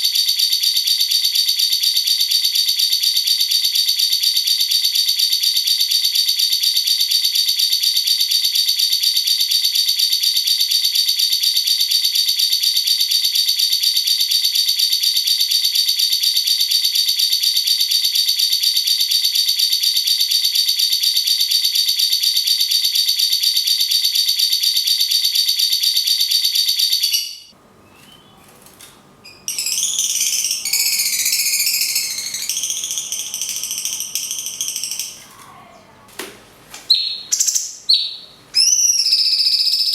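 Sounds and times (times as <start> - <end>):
bird rattling trill: 29.5 - 35.2.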